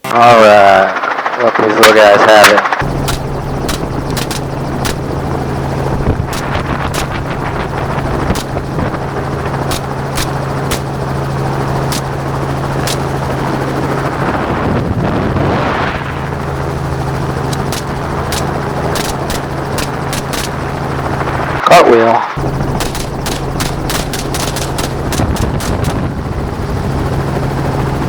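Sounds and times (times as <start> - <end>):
helicopter engine and rotor: 0.2 - 28.0
rifle shots: 2.8 - 5.4, 6.3 - 8.9, 9.7 - 11.0, 11.9 - 12.2, 12.8 - 13.2, 17.5 - 20.8, 22.7 - 26.2.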